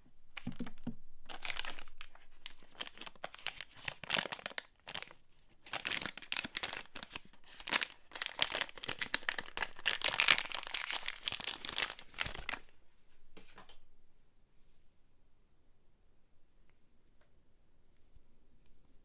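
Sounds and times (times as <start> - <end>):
packaging crinkling: 0.4 - 12.7.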